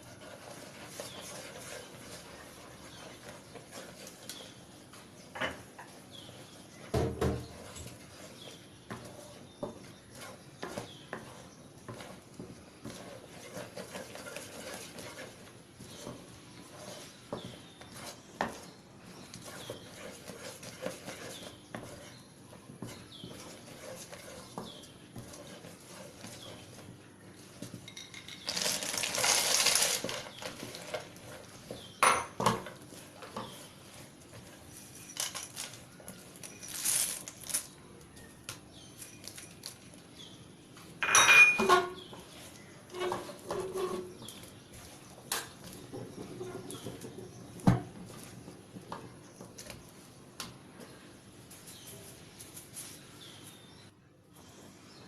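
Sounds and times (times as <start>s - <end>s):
kitchen utensils clinking and scraping: 27.7s - 37.8s, 41.0s - 47.5s.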